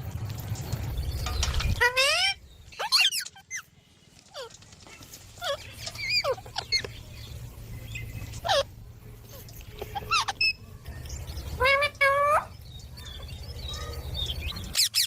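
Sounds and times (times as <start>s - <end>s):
parrots squawking: 1.7s - 3.7s, 5.2s - 7.0s, 8.1s - 10.6s, 11.4s - 15.0s.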